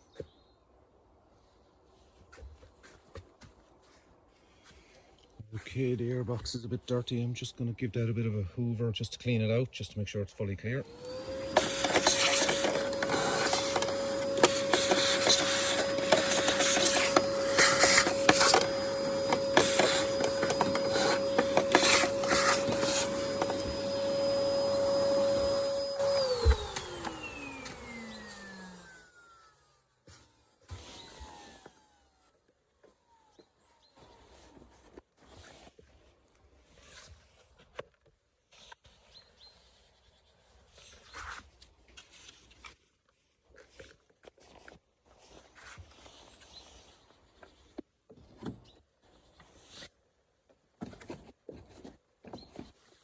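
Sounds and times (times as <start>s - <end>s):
vacuum cleaner whining: 10.8s - 34.7s
vacuum nozzle clicking and scraping: 10.9s - 29.1s.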